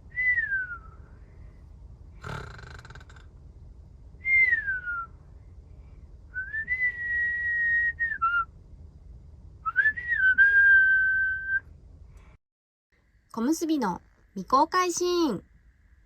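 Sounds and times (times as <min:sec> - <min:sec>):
person whistling: 0:06.4 - 0:08.5, 0:09.7 - 0:11.6.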